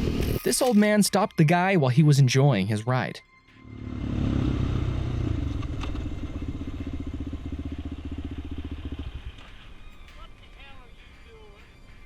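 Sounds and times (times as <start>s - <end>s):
motorcycle engine running: 3.6s - 11.2s.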